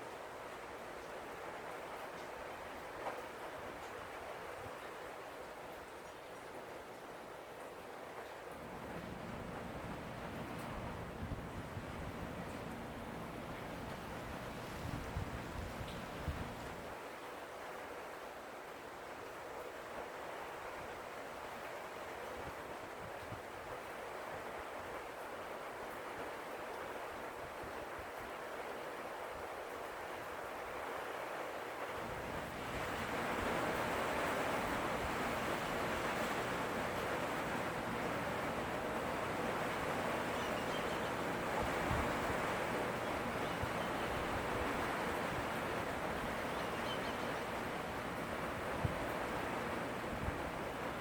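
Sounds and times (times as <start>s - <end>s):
rain: 0.0s - 51.0s
storm wind: 8.6s - 17.0s, 32.0s - 51.0s
wind buffeting microphone: 8.8s - 16.9s.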